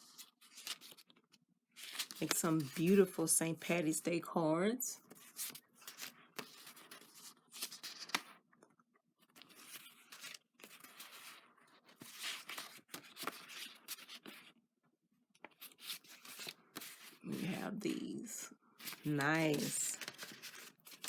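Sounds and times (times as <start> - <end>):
paper packaging rustling: 1.8 - 2.9, 18.8 - 21.0.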